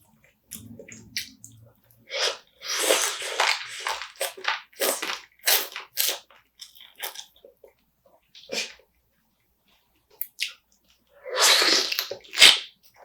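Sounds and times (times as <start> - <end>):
crunchy chewing: 0.5 - 7.8.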